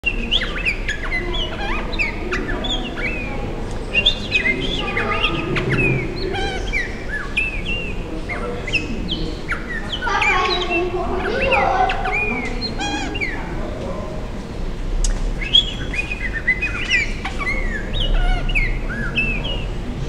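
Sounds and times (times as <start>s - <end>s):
birds chirping and whistling: 0.0s - 13.8s, 14.7s - 20.0s.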